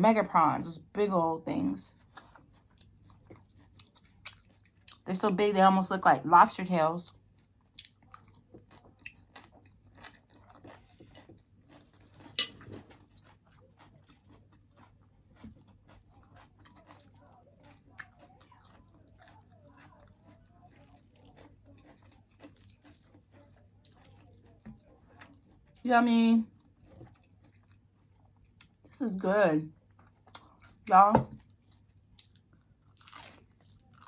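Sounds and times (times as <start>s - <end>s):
chewing and crunching fried food: 0.2s - 34.0s.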